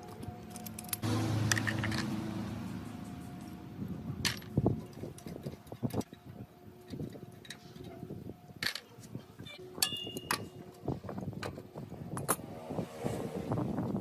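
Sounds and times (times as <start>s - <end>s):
metal tools clinking and knocking: 0.0s - 2.1s.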